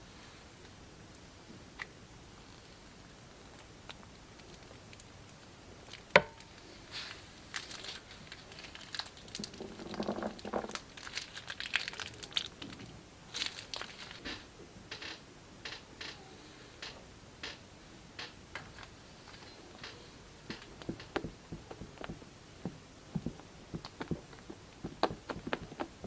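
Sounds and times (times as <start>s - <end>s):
plastic bags crinkling: 6.9s - 14.4s.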